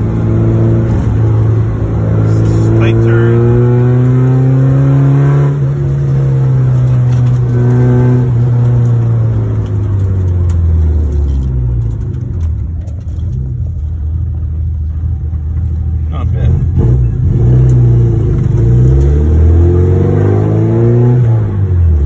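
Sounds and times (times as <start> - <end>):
car engine revving from inside cabin: 0.0 - 9.2, 16.6 - 22.0.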